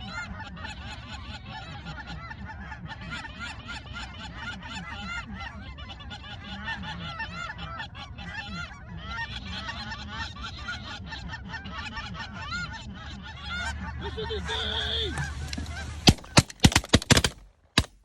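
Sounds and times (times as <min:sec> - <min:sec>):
flock of geese honking: 0:00.0 - 0:16.5.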